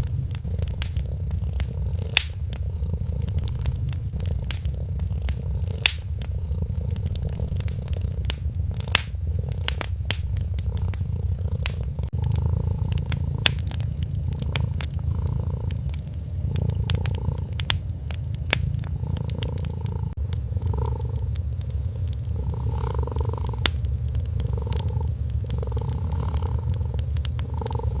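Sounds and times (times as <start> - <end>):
cat purring: 0.0 - 28.0
wood fire crackling: 0.0 - 28.0.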